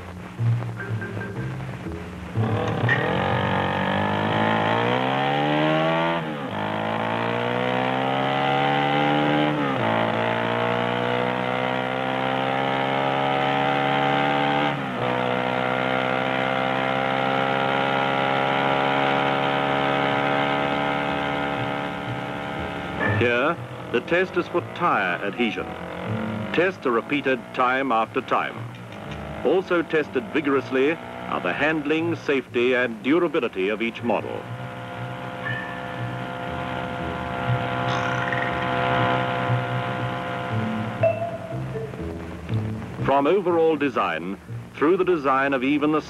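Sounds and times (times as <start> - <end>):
motorcycle engine accelerating: 0.0 - 46.0.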